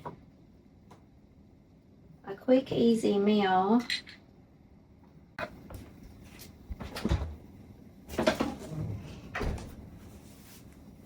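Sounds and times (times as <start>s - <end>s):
cupboard doors opening and closing: 6.7s - 7.5s, 8.1s - 10.0s.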